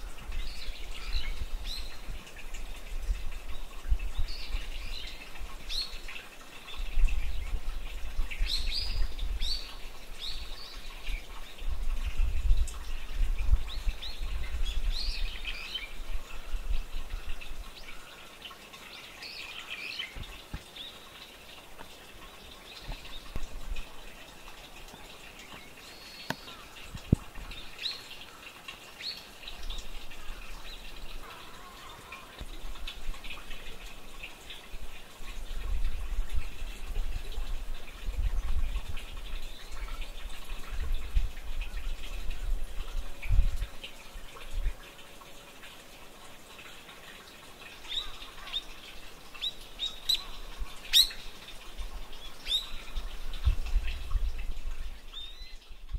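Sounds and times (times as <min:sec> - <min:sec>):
small birds chirping: 0:12.8 - 0:32.4, 0:47.7 - 0:54.2.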